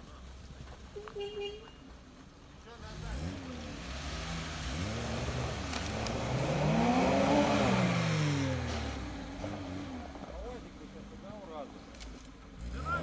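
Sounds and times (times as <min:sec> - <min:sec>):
vehicle engine revving: 0:02.8 - 0:11.8, 0:12.4 - 0:13.0.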